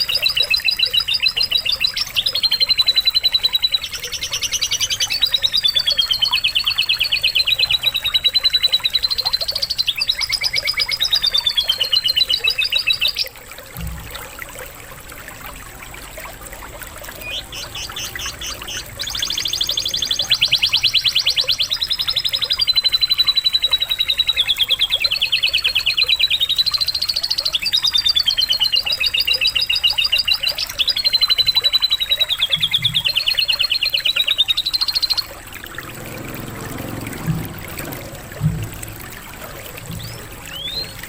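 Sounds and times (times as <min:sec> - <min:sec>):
canary singing trills: 0:00.0 - 0:13.4, 0:17.0 - 0:36.8, 0:39.8 - 0:41.0
water trickling and pouring: 0:00.0 - 0:41.0
low thumps: 0:13.8 - 0:14.2, 0:36.1 - 0:39.2.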